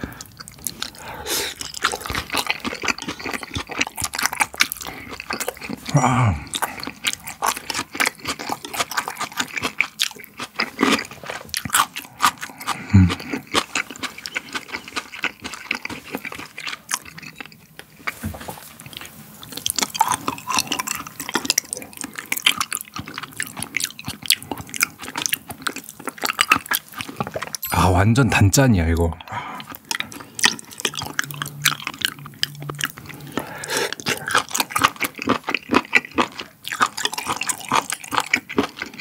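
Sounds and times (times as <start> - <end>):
wet chewing: 0.0 - 27.6, 29.2 - 39.0
low falling vocal hum: 5.9 - 6.5.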